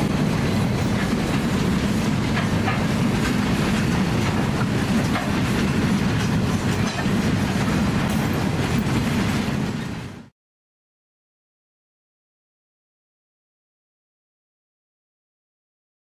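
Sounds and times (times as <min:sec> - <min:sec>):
steel wheels on rails: 0:00.0 - 0:10.3.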